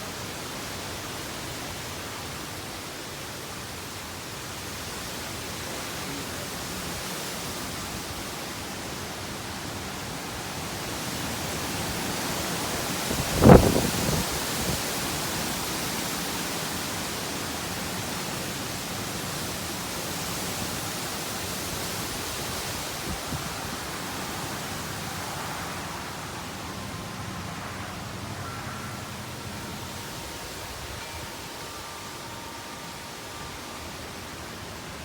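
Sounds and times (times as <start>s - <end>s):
strong wind blowing: 9.0s - 15.2s.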